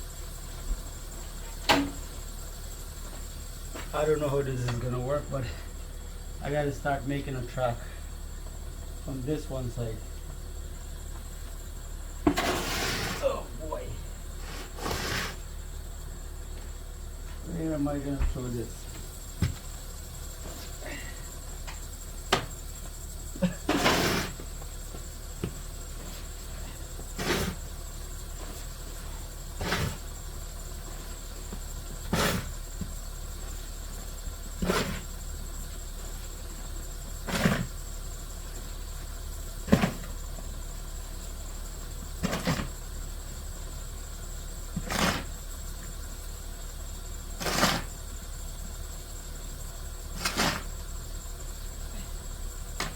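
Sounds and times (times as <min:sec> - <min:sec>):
shovel scraping snow: 0:12.3 - 0:13.3, 0:14.4 - 0:15.5, 0:23.7 - 0:24.4, 0:27.1 - 0:27.7, 0:29.6 - 0:30.0, 0:32.1 - 0:32.5, 0:34.6 - 0:35.0, 0:37.2 - 0:37.7, 0:44.8 - 0:45.3, 0:47.4 - 0:48.0, 0:50.1 - 0:50.7.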